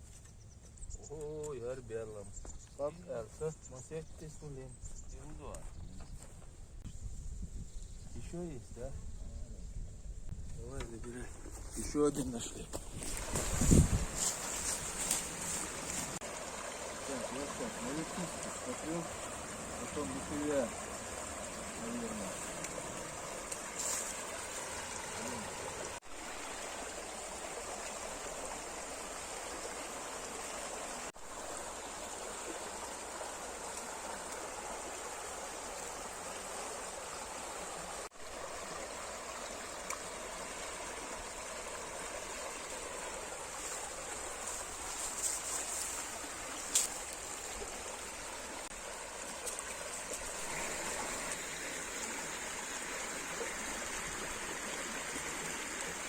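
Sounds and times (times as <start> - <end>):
river water flowing: 12.0 - 56.0.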